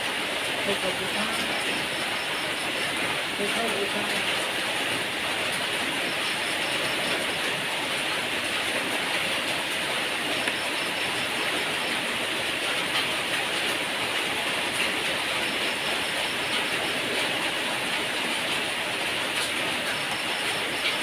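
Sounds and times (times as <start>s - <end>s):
heavy rain hissing: 0.0s - 21.0s.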